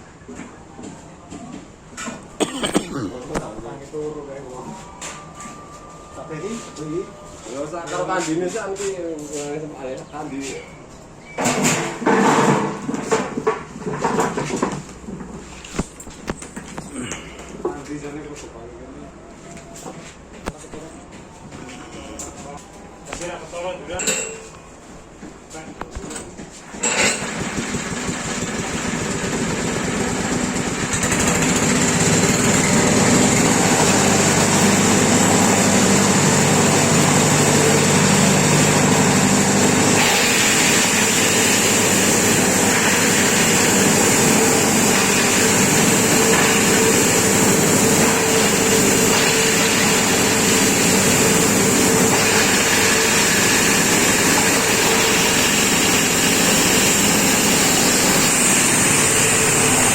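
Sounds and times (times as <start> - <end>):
grass chopper machine running: 26.8 - 59.9.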